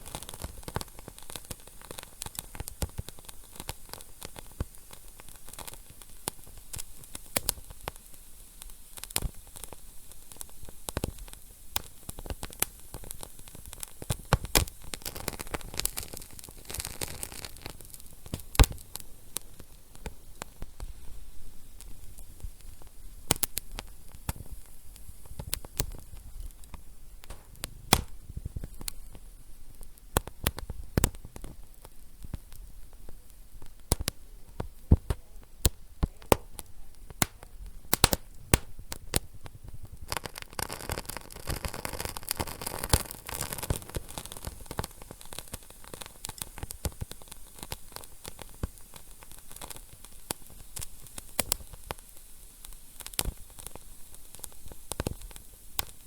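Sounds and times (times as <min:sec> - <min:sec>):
hissing fire flare-up: 0:00.0 - 0:56.0
wood fire crackling and popping: 0:00.0 - 0:56.0.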